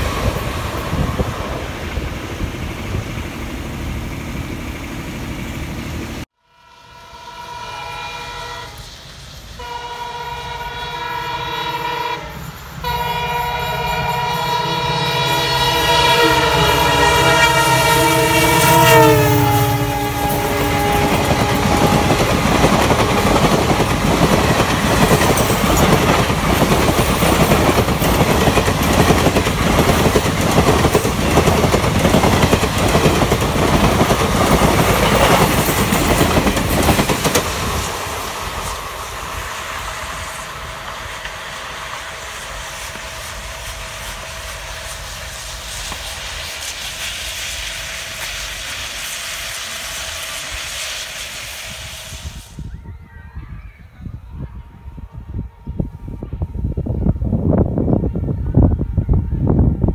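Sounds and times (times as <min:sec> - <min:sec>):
locomotive horn: 0:06.4 - 0:08.8, 0:09.6 - 0:24.4
train wheels clattering: 0:15.3 - 0:51.2.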